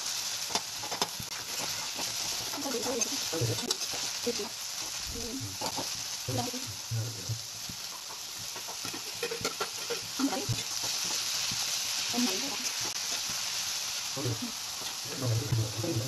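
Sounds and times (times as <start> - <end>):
vegetables sizzling in oil: 0.0 - 16.0
metal spatula scraping a pan: 0.4 - 4.5, 8.0 - 11.6.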